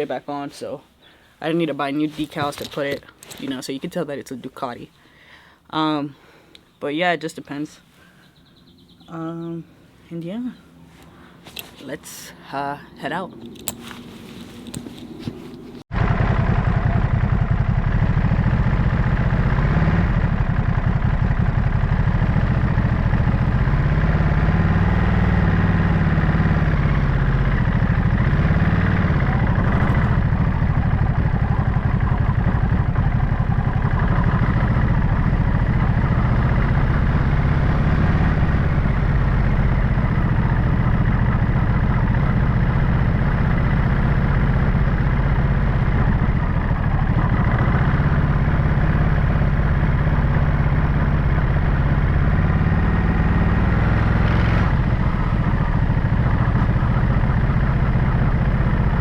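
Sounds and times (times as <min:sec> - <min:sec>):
motorcycle engine running: 0:14.6 - 0:59.0.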